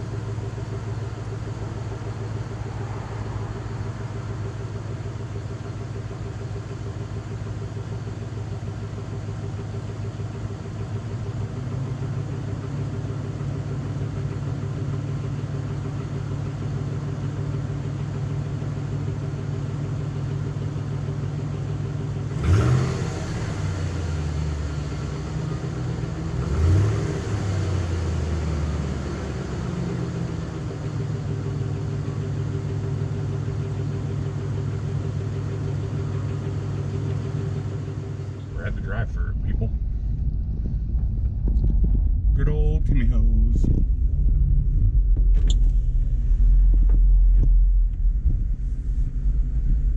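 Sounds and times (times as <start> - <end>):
truck engine revving: 22.3 - 24.7, 26.3 - 29.4, 37.7 - 49.9.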